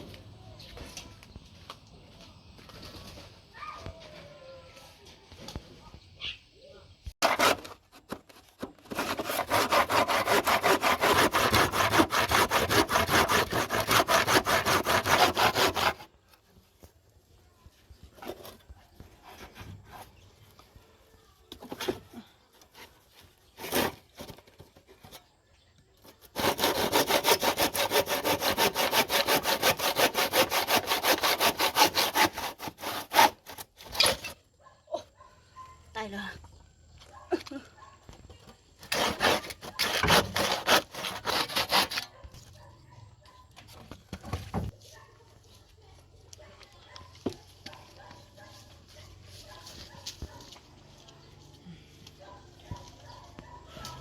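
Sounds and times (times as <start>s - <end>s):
hand saw cutting wood: 7.2s - 16.2s, 22.7s - 24.4s, 26.1s - 34.4s, 38.8s - 42.3s.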